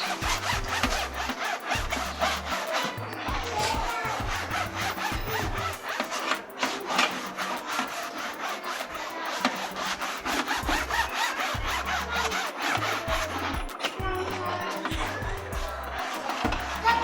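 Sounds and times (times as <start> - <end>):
music with low bass line: 0.0 - 6.0, 9.5 - 17.0
rapid scraping strokes: 0.0 - 17.0.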